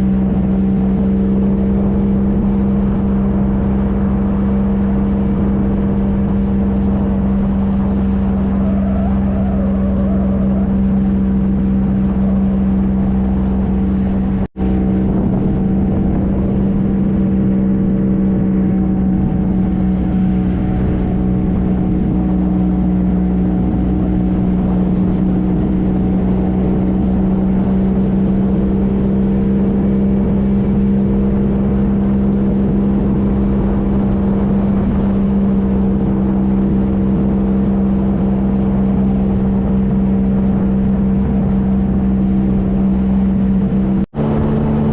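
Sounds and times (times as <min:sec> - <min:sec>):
motorcycle engine cruising: 0:00.0 - 0:44.9
wind and road noise: 0:00.0 - 0:44.9.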